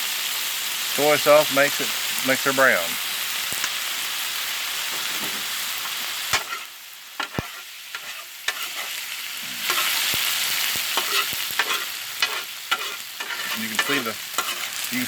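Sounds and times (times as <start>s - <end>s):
rice sizzling on a griddle: 0.0s - 15.0s
spatula scraping a griddle: 5.0s - 15.0s.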